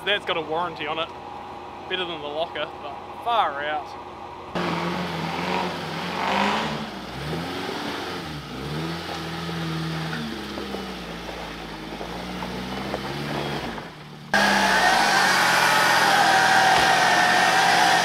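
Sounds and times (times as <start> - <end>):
car engine revving: 4.6 - 18.0.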